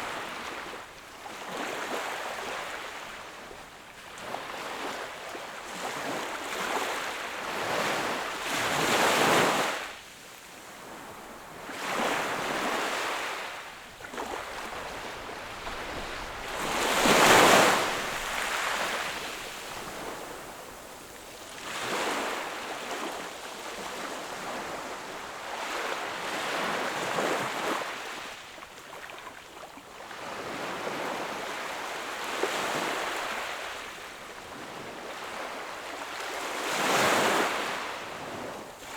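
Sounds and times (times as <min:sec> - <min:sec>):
sea waves breaking on shore: 0:04.2 - 0:29.2.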